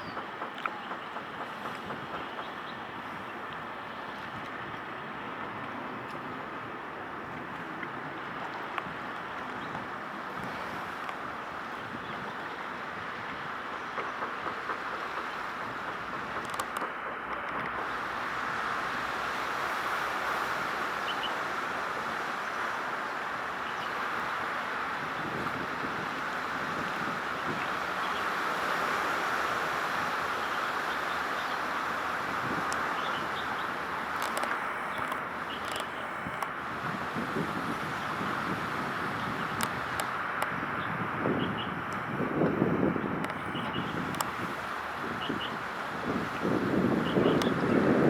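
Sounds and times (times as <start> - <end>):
faint clicks: 0.0 - 2.8, 13.9 - 17.9, 32.6 - 36.6, 39.5 - 40.5, 43.2 - 44.5
steady outdoor noise: 0.0 - 48.0.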